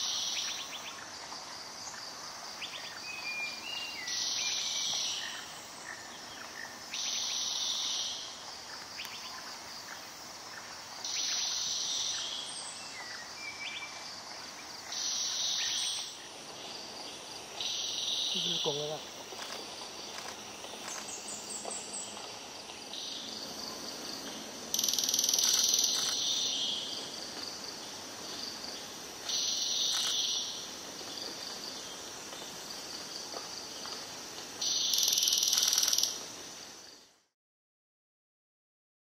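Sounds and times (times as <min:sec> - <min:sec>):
forest hiss: 0:00.0 - 0:37.3
bird buzzy rattling calls: 0:34.6 - 0:36.2.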